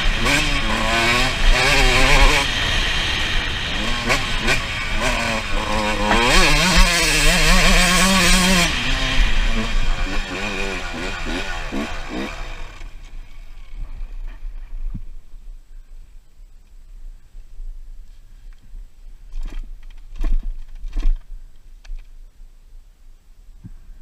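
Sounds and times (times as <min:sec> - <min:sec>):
dirt bike engine revving: 0:00.0 - 0:14.4.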